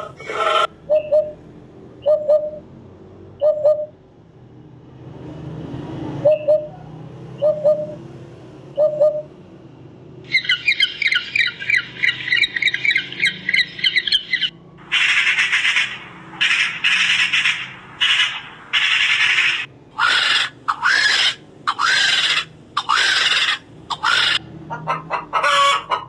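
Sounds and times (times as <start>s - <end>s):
magpie rattling chatter: 10.3s - 24.4s
harsh rasping bird calls: 10.3s - 26.0s.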